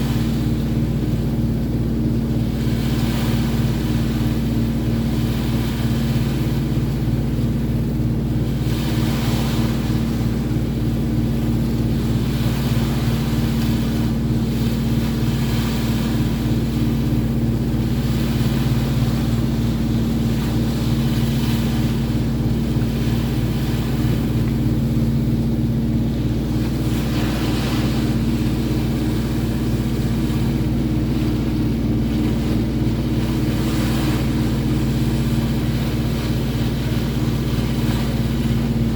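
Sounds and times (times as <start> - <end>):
boat engine droning: 0.0 - 38.9
water rushing: 0.0 - 38.9
wind: 0.0 - 38.9.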